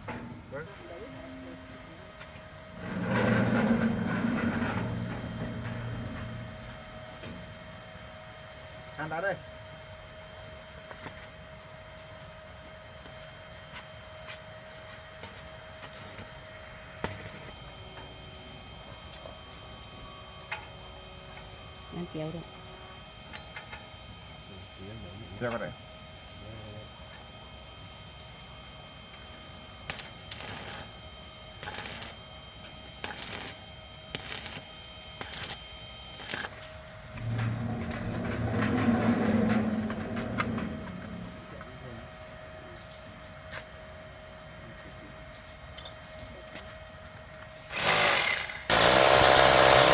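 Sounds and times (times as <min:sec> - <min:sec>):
workshop hum with faint whine: 0:00.0 - 0:47.8
arc welding crackling hiss: 0:29.8 - 0:32.3, 0:32.9 - 0:36.6.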